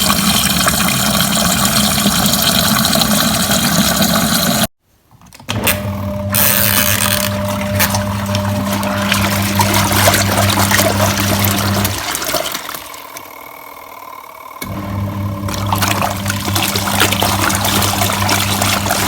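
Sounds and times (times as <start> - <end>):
washing machine motor humming: 0.0 - 4.7, 5.5 - 19.0
water sloshing: 7.3 - 13.4, 15.2 - 19.0.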